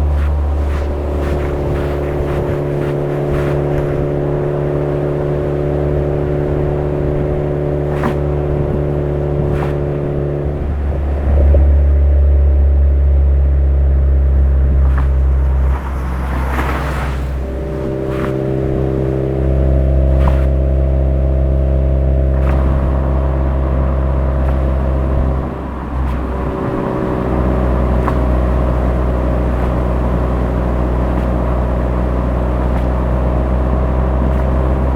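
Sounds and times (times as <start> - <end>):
car engine droning while driving: 0.0 - 34.9.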